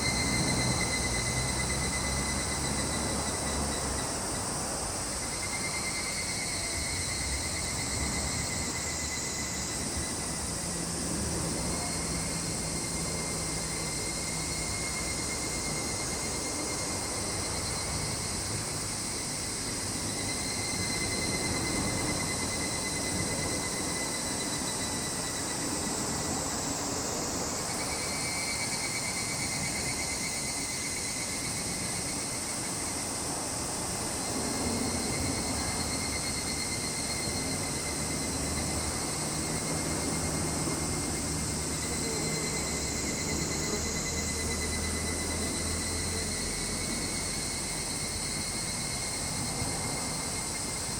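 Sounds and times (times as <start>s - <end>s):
high insect buzz: 0.0s - 50.9s
insects chirping: 0.0s - 50.9s.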